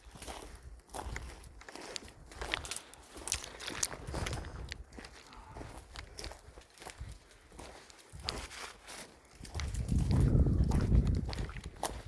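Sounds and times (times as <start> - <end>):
footsteps crunching on gravel: 0.0 - 12.0.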